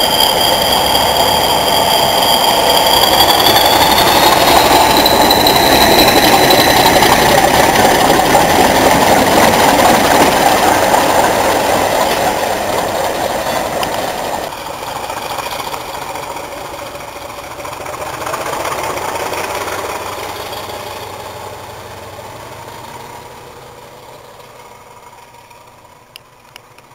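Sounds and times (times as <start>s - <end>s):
high whistle: 0.0s - 17.5s, 18.2s - 21.6s
diesel locomotive engine working hard: 0.0s - 26.9s.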